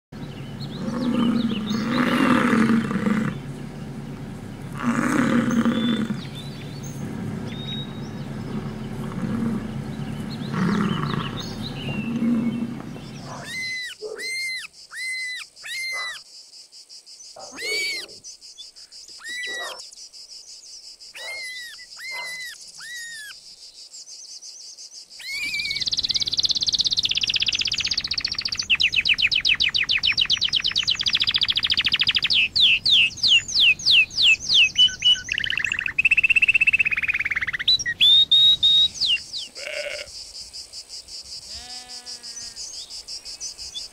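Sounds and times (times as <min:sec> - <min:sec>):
canary singing in trills: 0:00.2 - 0:03.9, 0:05.0 - 0:16.2, 0:17.4 - 0:19.8, 0:21.2 - 0:23.4, 0:25.2 - 0:40.1
bison bellowing: 0:00.5 - 0:13.7.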